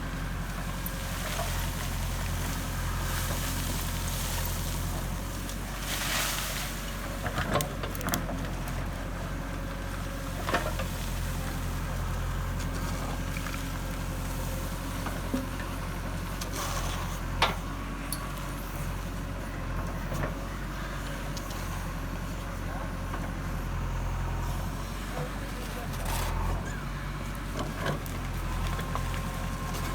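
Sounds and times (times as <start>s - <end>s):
diesel engine running: 0.0s - 29.9s
loader knocks and clanks: 0.0s - 29.9s.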